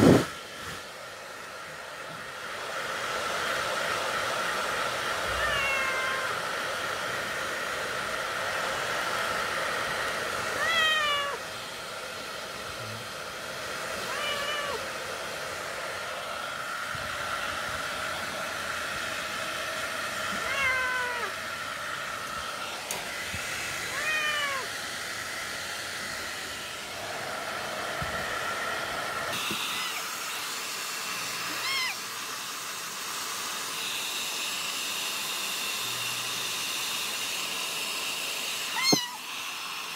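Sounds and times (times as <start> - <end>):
hair dryer whirring: 0.0 - 39.9
cat meowing: 5.2 - 6.6, 10.5 - 11.5, 14.0 - 14.9, 20.3 - 21.4, 23.8 - 24.7, 29.6 - 30.1, 31.5 - 32.1, 38.7 - 39.3.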